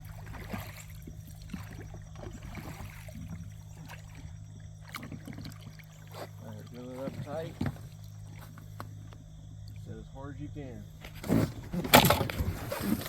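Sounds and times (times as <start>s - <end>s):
small knocks on boat: 0.0s - 9.8s
steady low hum: 0.0s - 13.0s
water sloshing: 0.0s - 13.0s.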